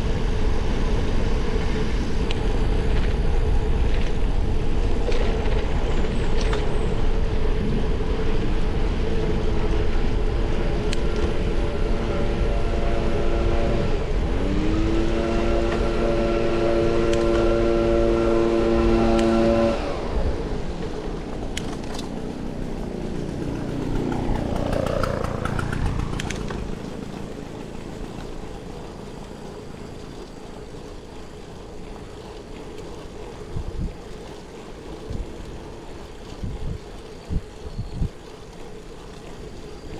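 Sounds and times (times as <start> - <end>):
wind rush: 0.0 - 29.9
motor vehicle engine: 22.2 - 27.8
vehicle passing by: 22.8 - 27.4.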